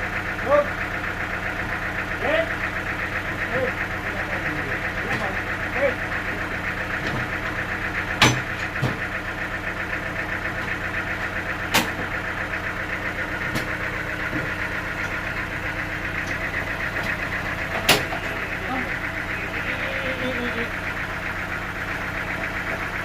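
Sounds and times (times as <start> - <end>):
engine running: 0.0 - 23.0
sharp knocks: 8.2 - 9.1.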